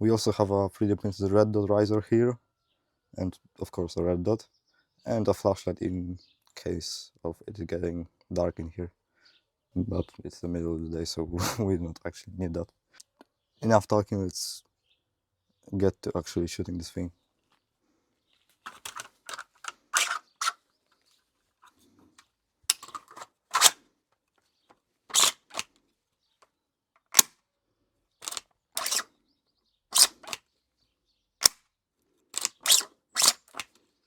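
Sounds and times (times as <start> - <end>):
rifle bolt clicks and clacks: 18.7 - 20.6, 22.7 - 23.8, 25.1 - 25.7, 27.0 - 27.4, 28.2 - 29.0, 30.0 - 30.4, 31.4 - 31.6, 32.4 - 33.8.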